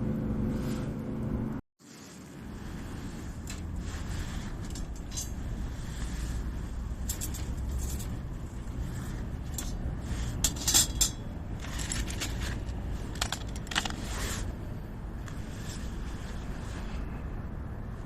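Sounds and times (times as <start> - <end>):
steady low rumble: 0.0 - 18.0
metallic clinks and clatters: 3.4 - 14.4.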